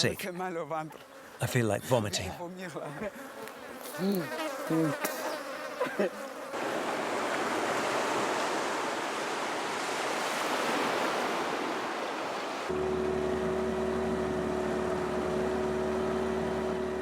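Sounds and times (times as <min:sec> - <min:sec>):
flies buzzing: 0:00.0 - 0:17.0
sea surf rushing: 0:06.5 - 0:17.0.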